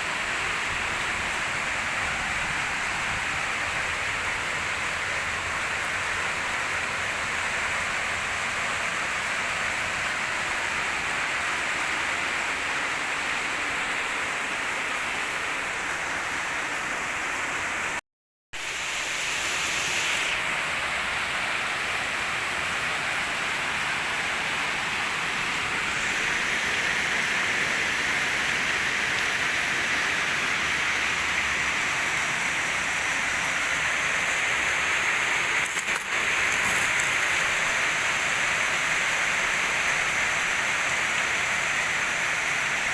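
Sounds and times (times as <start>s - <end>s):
water spray hissing from nozzle: 18.6s - 42.9s.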